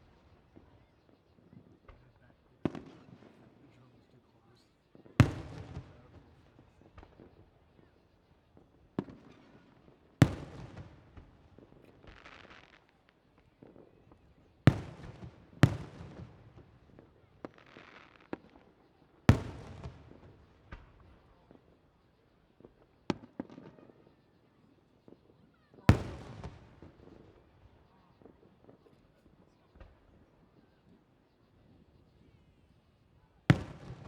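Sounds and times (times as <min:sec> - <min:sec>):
smaller firework bangs: 0:01.6 - 0:03.5, 0:05.0 - 0:07.9, 0:08.6 - 0:21.6, 0:22.6 - 0:24.2, 0:25.1 - 0:28.9, 0:33.4 - 0:34.0
fireworks booming: 0:33.5 - 0:34.0.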